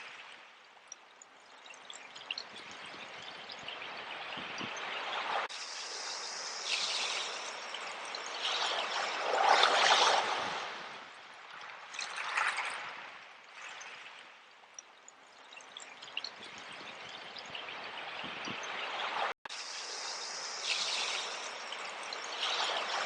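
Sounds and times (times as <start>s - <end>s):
sea waves washing in: 3.7s - 14.2s, 17.9s - 23.0s.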